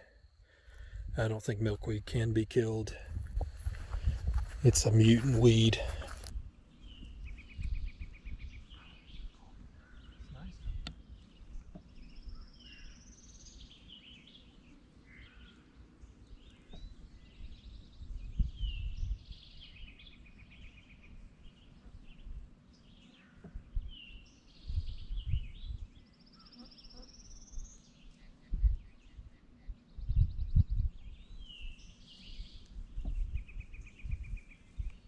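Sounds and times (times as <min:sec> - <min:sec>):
low rumbling bumps: 0:02.9 - 0:06.3
songbirds singing with trills: 0:03.1 - 0:35.0.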